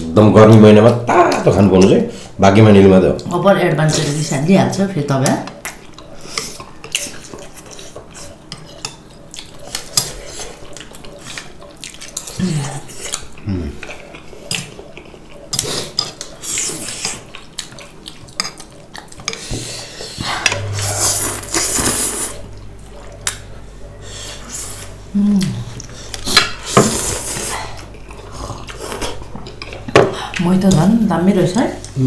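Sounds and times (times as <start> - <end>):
eating noise: 5.2 - 30.4.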